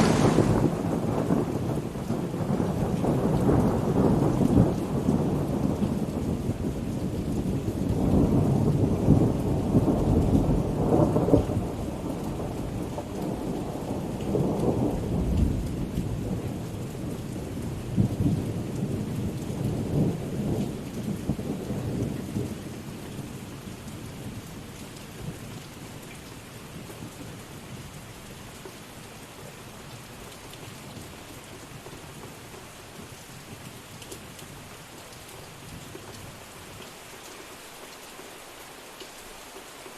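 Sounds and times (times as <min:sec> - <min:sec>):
thunder rumbling: 0:00.0 - 0:05.4
steady rain: 0:00.0 - 0:39.9.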